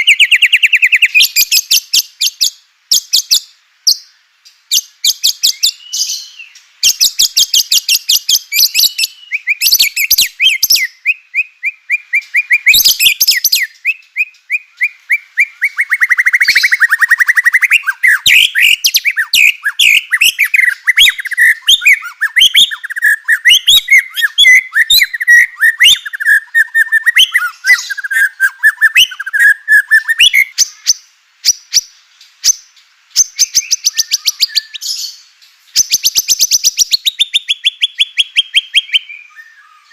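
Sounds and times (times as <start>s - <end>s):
bird song with rattles and whistles: 0.0s - 39.9s.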